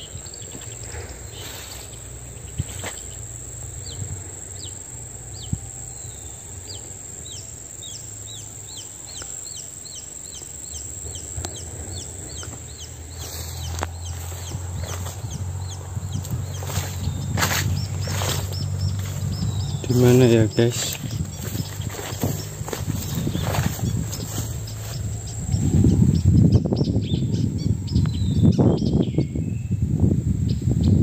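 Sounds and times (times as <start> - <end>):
high insect drone: 0.0 - 31.0
low rumble: 10.7 - 28.8.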